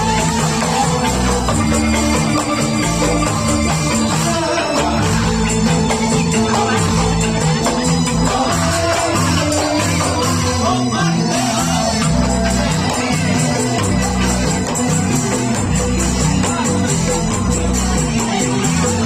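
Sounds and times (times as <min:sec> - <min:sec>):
bamboo xylophones playing: 0:00.0 - 0:19.0
rapid high percussion strokes: 0:00.0 - 0:19.0.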